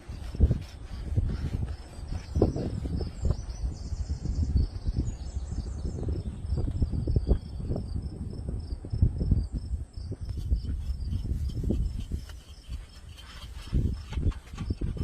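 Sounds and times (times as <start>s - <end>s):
crickets chirping: 6.0s - 15.0s.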